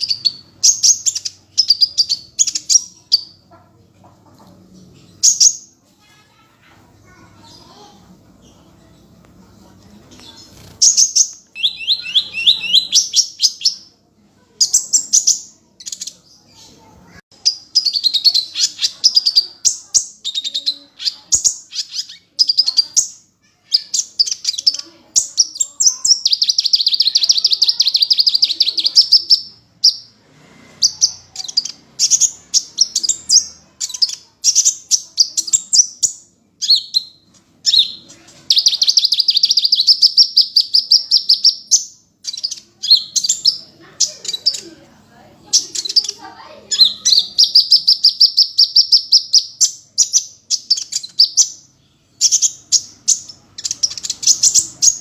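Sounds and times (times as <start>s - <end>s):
bird trilling and chirping: 0.0s - 55.0s.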